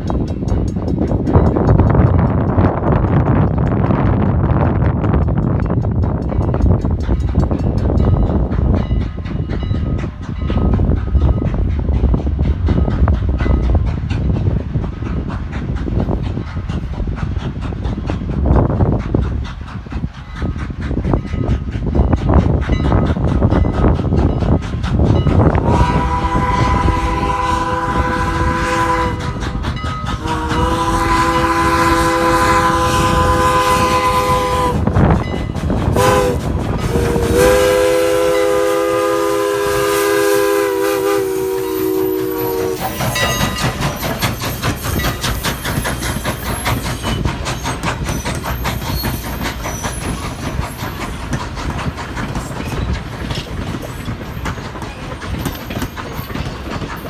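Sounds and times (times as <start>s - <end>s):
train rumbling and clattering: 0.0s - 57.0s
wheels clicking over rail joints: 0.0s - 57.0s
steam locomotive chime whistle: 25.6s - 51.0s.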